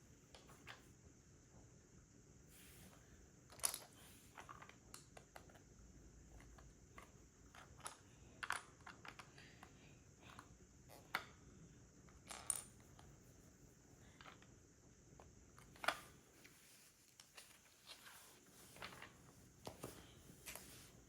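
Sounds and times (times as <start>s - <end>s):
plastic bricks clicking together: 7.0s - 9.4s.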